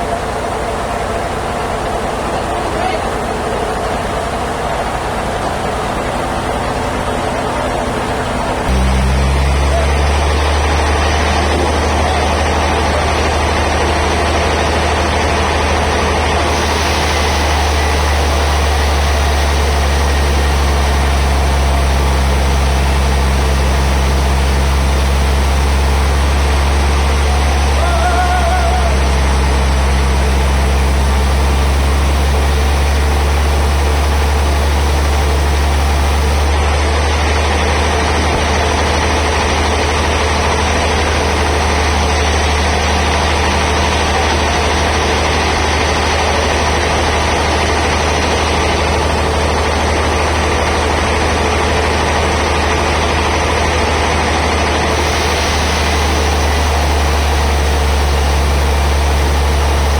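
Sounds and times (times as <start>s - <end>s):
band saw machinery running: 0.0s - 59.9s.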